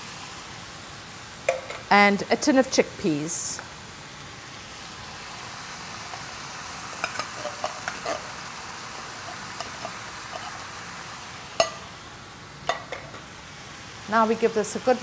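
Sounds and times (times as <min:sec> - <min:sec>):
vegetables sizzling in a saucepan: 0:00.0 - 0:15.0
tin knocking on pan: 0:01.5 - 0:01.9, 0:12.7 - 0:13.2.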